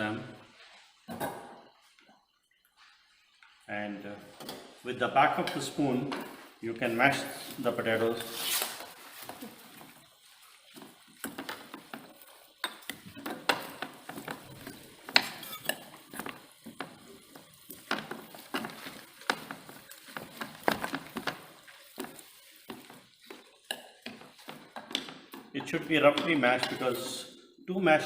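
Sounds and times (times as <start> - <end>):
spoon scraping bowl: 7.2 - 25.1.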